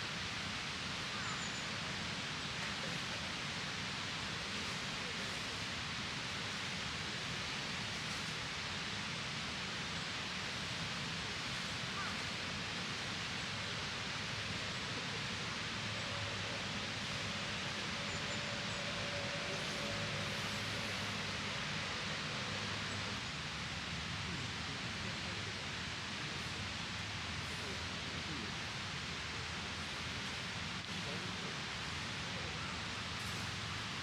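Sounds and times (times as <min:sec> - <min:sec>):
steady rushing noise: 0:15.3 - 0:24.1.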